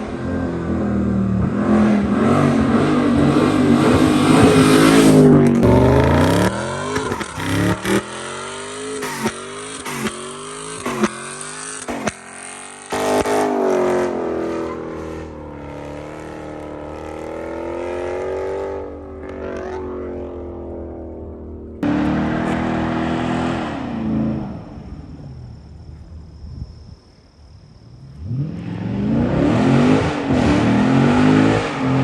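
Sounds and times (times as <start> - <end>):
car engine revving: 0.0 - 25.3, 28.1 - 32.0
exhaust cracks and pops: 5.3 - 8.1.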